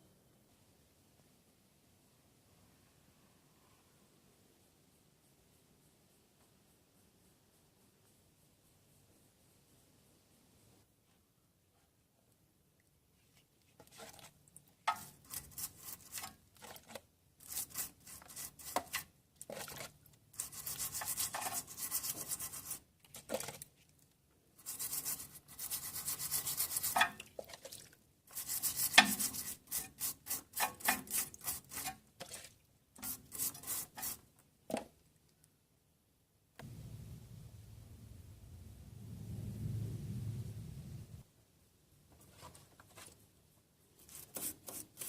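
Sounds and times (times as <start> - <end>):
rubbing and scraping strokes: 13.2 - 23.6, 24.6 - 34.3, 43.9 - 45.0.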